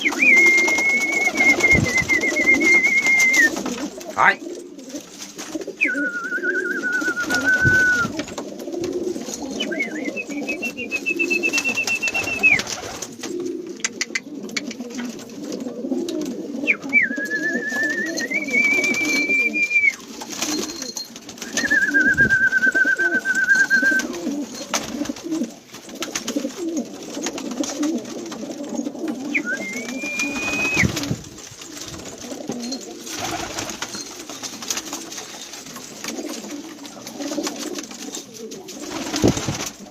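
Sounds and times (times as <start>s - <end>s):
pigeons cooing: 0.0s - 39.9s
long high whistles: 5.8s - 8.1s, 29.4s - 31.0s.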